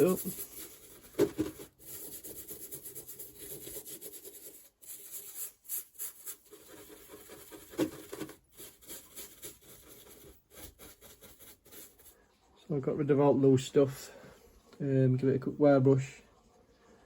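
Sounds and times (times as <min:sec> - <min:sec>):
brush scrubbing metal: 0:00.0 - 0:12.1.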